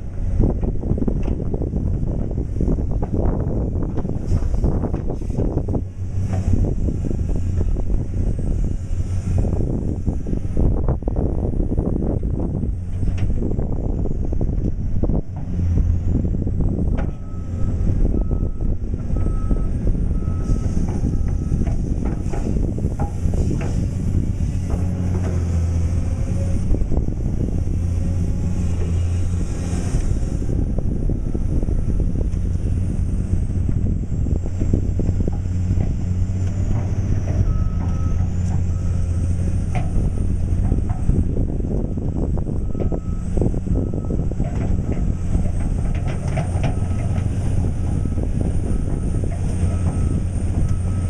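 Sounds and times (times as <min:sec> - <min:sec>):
diesel engine rumble: 0:00.0 - 0:51.0
excavator travel alarm beeping: 0:17.0 - 0:21.7, 0:37.2 - 0:45.6, 0:46.2 - 0:51.0.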